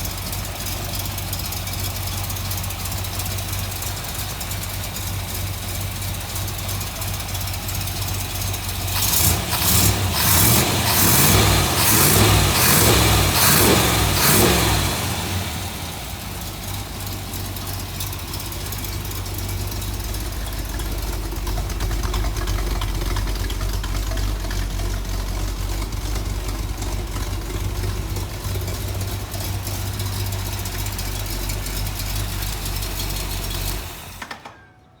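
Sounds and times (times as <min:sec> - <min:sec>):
car engine idling and revving: 0:00.0 - 0:34.6.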